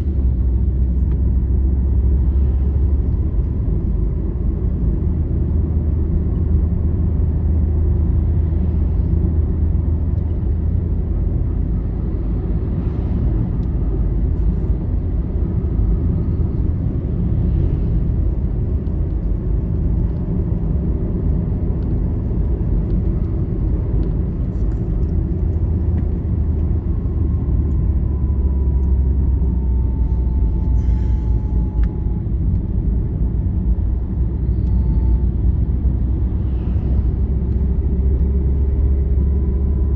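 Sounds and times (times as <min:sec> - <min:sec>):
vehicle road and engine rumble: 0:00.0 - 0:39.9
faint whine: 0:24.4 - 0:39.9.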